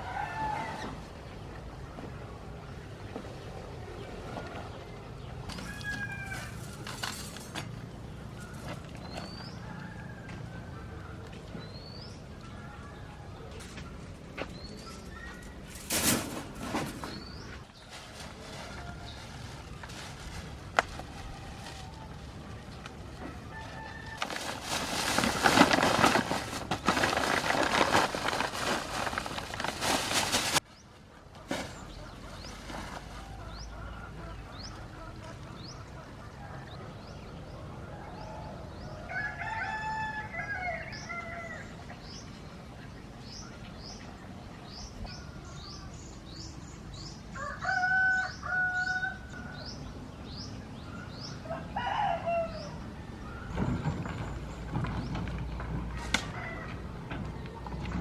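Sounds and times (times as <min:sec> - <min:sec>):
rooster crowing: 0:00.0 - 0:01.0, 0:05.5 - 0:06.8, 0:09.5 - 0:11.0, 0:23.2 - 0:24.4, 0:38.0 - 0:41.7, 0:47.4 - 0:49.6, 0:51.4 - 0:52.8.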